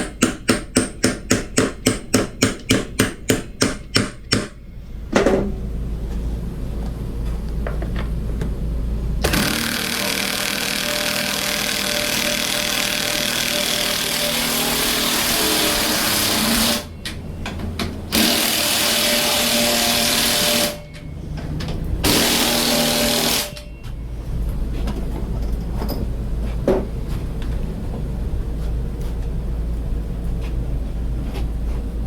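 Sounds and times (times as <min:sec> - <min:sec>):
power drill boring: 0:09.3 - 0:16.9.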